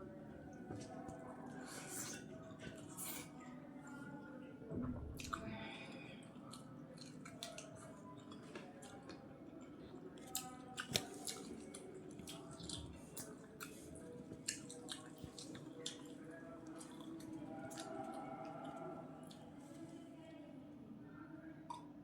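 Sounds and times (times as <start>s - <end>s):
wet chewing and mouth smacks: 6.5s - 9.2s, 10.2s - 19.5s.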